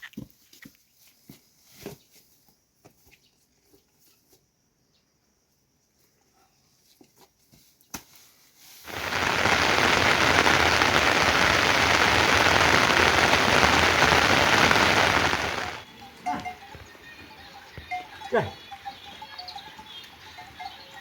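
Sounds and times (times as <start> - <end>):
heavy rain falling: 8.9 - 15.9.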